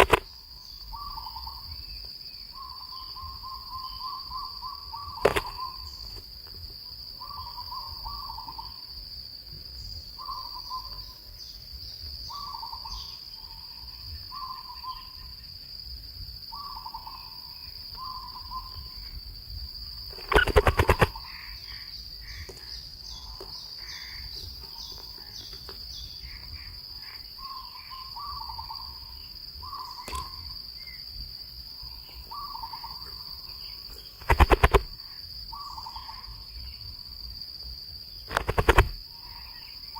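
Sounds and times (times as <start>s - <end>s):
rapid clicks: 0.0s - 0.2s, 20.1s - 21.1s, 34.2s - 35.0s, 38.3s - 39.0s
insect drone: 0.0s - 39.9s
higher chirping: 20.1s - 21.3s
bird repeating short call: 20.2s - 21.2s.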